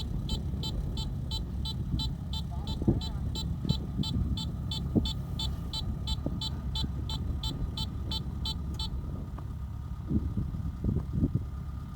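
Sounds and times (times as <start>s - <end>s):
rapid electronic warning beeps: 0.0s - 9.0s
engine running: 0.0s - 11.9s.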